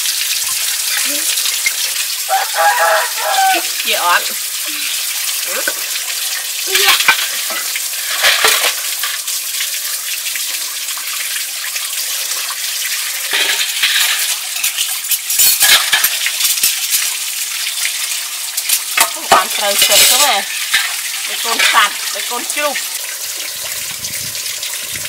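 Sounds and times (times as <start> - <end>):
rain hissing: 0.0 - 25.0
wok scrubbed in water: 2.3 - 9.2, 19.0 - 22.8.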